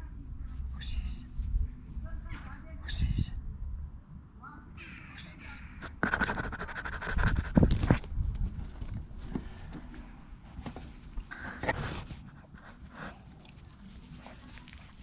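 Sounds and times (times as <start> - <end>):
puppy panting: 11.3 - 15.0.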